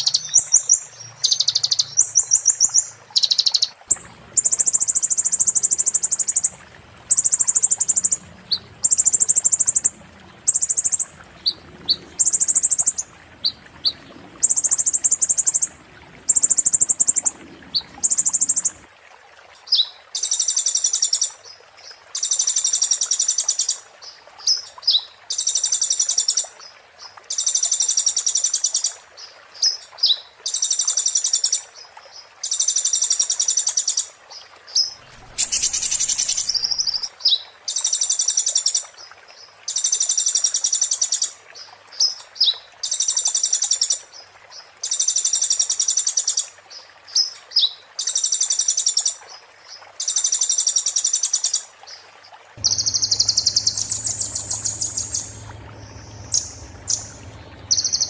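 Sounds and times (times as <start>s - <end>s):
songbird singing: 0.0s - 15.6s, 34.7s - 38.0s, 52.6s - 58.0s
bird chips: 35.0s - 37.1s, 52.6s - 58.0s.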